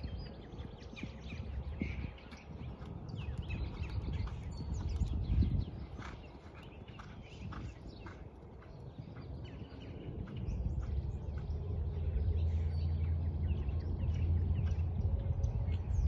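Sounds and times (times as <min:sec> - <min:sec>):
birds chirping and tweeting: 0:00.0 - 0:16.0
low steady rumble: 0:09.1 - 0:16.0.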